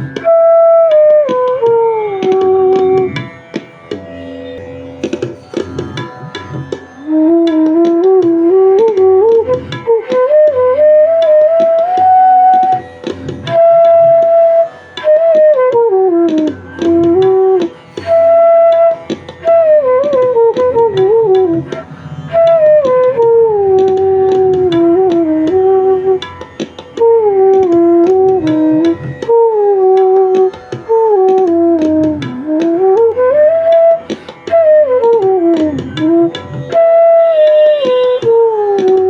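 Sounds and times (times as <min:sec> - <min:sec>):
bamboo flute melody: 0:00.0 - 0:03.6, 0:05.9 - 0:39.0
light percussive taps: 0:00.0 - 0:04.2, 0:05.0 - 0:39.0.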